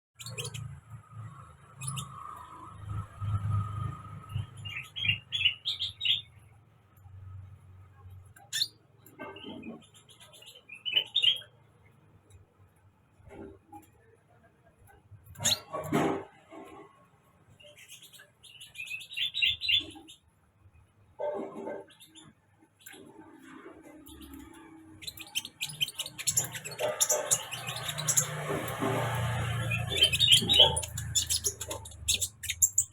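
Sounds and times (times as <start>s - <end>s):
sunbird chirping: 24.1s - 32.9s.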